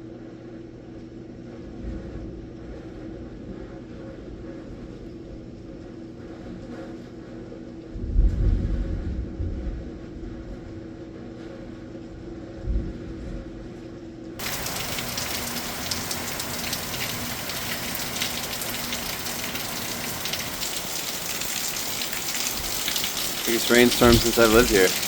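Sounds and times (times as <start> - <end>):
muffled low rumble: 8.0 - 10.7
faint hum: 11.6 - 25.0
heavy rain pouring: 14.4 - 25.0.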